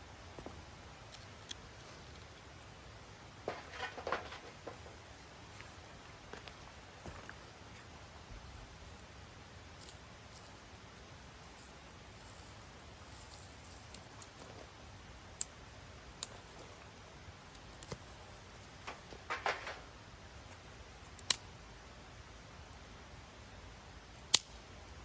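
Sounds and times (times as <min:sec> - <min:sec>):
rustling: 0:03.3 - 0:09.2, 0:09.8 - 0:19.9.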